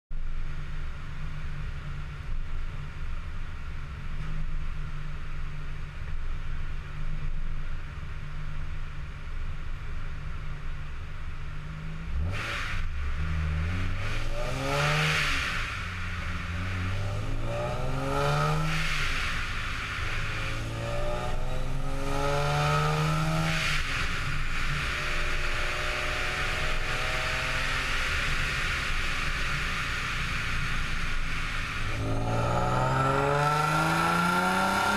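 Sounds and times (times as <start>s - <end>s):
car engine revving on dyno: 11.7s - 34.9s.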